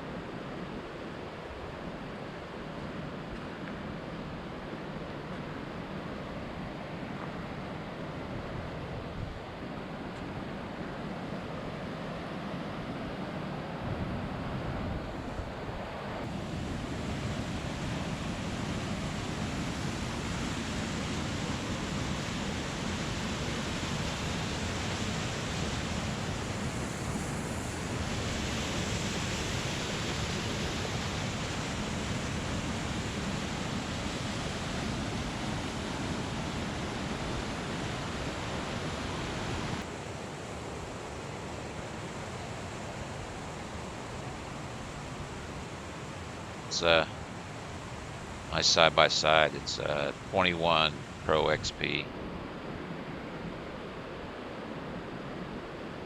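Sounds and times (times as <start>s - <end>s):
creek waterfall rushing: 46.1s - 47.3s, 48.5s - 52.0s.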